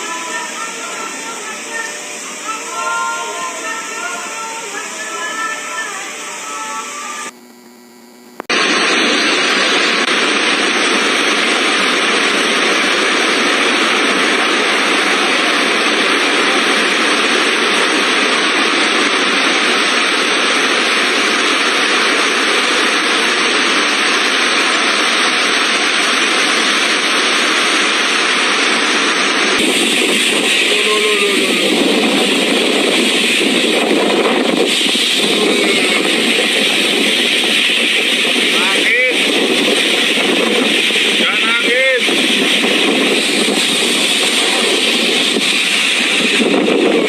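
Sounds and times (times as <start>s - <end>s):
heavy rain pouring: 0.0s - 7.3s, 8.5s - 47.0s.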